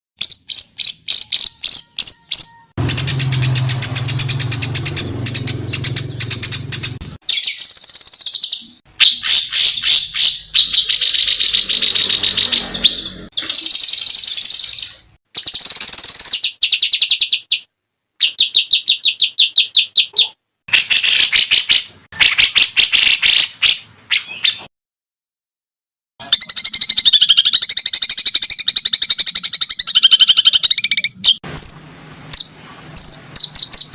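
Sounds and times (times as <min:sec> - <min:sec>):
buzzy bird chirping: 0:00.2 - 0:24.7, 0:26.2 - 0:33.9
songbird chirps and trills: 0:00.2 - 0:24.7.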